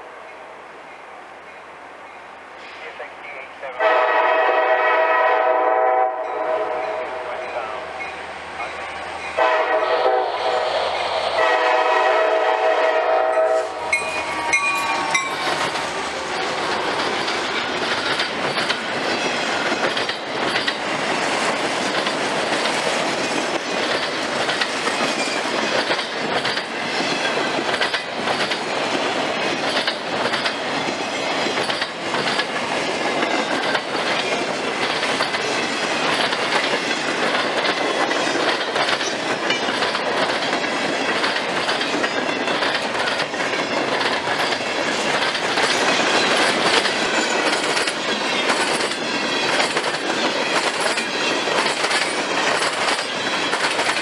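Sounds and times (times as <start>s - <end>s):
freight train horn: 3.7s - 8.0s, 9.3s - 16.1s
wheels clacking over rail joints: 13.8s - 54.0s.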